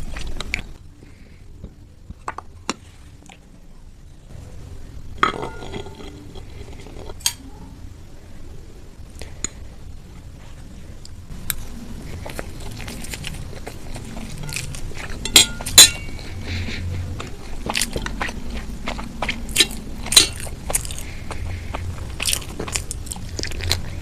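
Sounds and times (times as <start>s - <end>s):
cutlery clinking against dishes: 15.2s - 16.2s, 20.0s - 20.4s.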